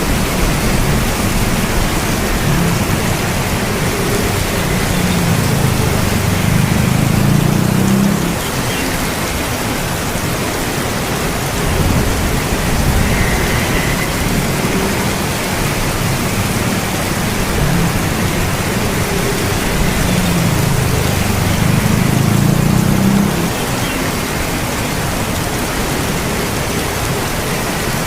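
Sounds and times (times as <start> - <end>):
steady rain: 0.0 - 28.0
low rumble: 11.4 - 23.7.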